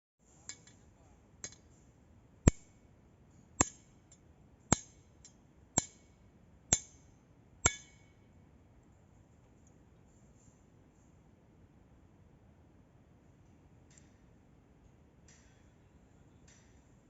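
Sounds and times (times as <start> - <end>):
hammer striking metal: 2.5 - 2.7, 3.6 - 4.0, 4.7 - 8.2.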